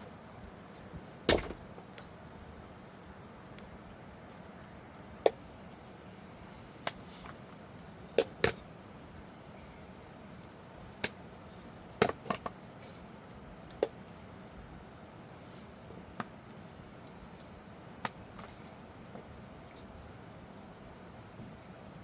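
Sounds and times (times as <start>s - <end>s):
wood being chopped: 1.3s - 1.8s.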